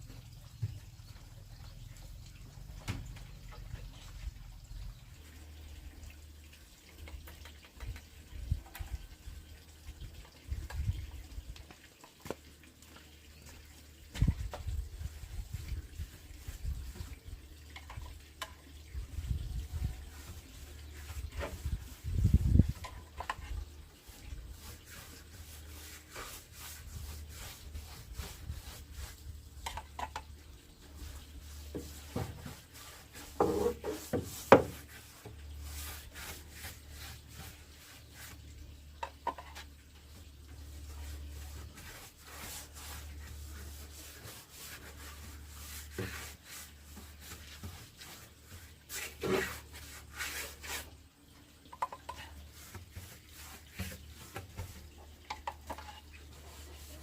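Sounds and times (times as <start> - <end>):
wood scraping on wood: 31.0 - 38.4, 40.9 - 50.9, 51.8 - 57.0.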